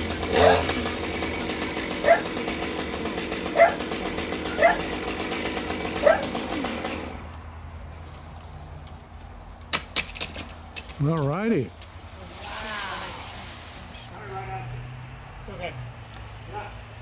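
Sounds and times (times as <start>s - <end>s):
chainsaw running: 0.0s - 7.5s
dog barking: 2.0s - 2.3s, 3.5s - 3.9s, 4.5s - 4.9s, 6.0s - 6.4s, 16.5s - 16.8s.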